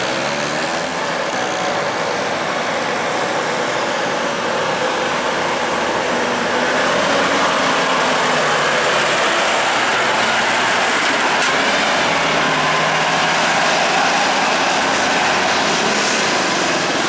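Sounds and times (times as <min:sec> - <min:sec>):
truck engine under load: 0:00.0 - 0:14.3.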